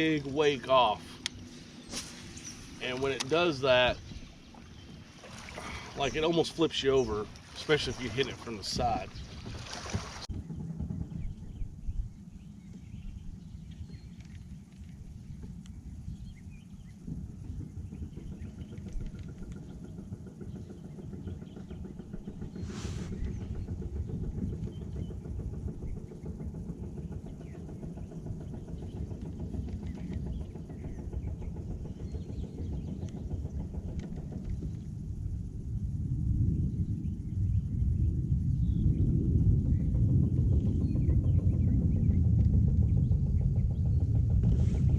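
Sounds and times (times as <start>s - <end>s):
outboard engine droning: 0.0s - 36.4s, 39.6s - 44.9s
brief hiss: 22.6s - 23.2s.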